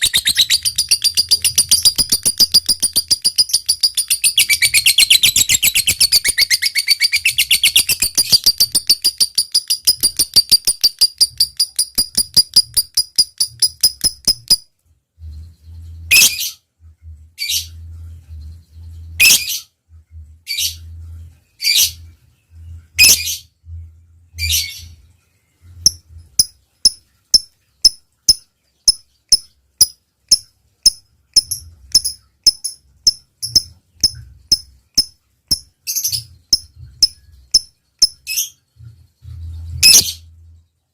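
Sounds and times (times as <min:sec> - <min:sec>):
bird sharp clicking notes: 0:00.0 - 0:14.6
lovebird chattering trill: 0:00.0 - 0:14.6.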